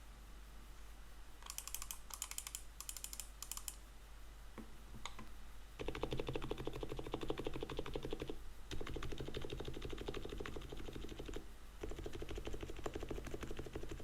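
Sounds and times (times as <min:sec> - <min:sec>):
typing on mechanical keyboard: 0:01.4 - 0:03.8, 0:05.8 - 0:14.0.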